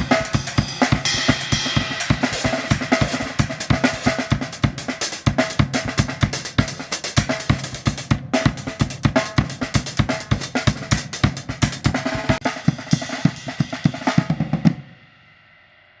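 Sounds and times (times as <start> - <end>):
cymbals ringing out: 0.0 - 3.4
drum kit groove: 0.0 - 15.3.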